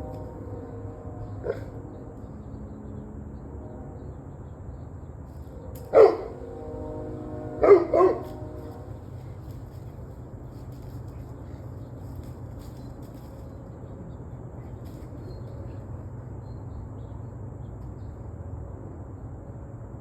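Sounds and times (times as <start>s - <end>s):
steady background hum: 0.0s - 20.0s
dog barking: 1.4s - 1.7s, 5.9s - 6.5s, 7.5s - 8.6s.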